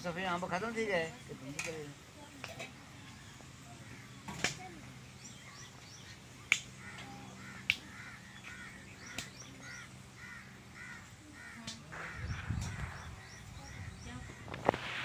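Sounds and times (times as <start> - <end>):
bird calling: 3.0 - 15.0
low rumbling noise: 11.9 - 15.0.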